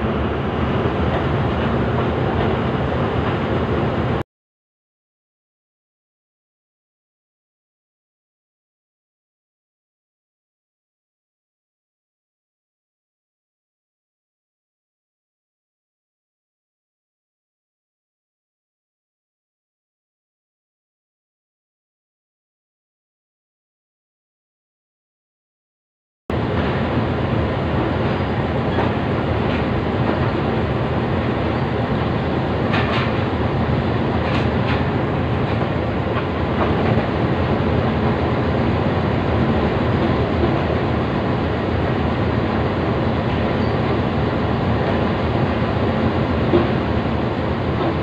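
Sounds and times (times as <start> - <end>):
train wheels rumbling and clattering: 0.0 - 4.2, 26.3 - 48.0.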